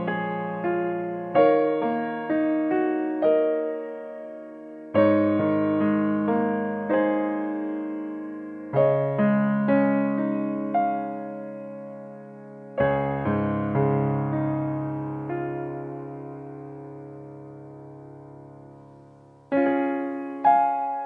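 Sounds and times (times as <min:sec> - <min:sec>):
gentle piano chords: 0:00.0 - 0:21.0.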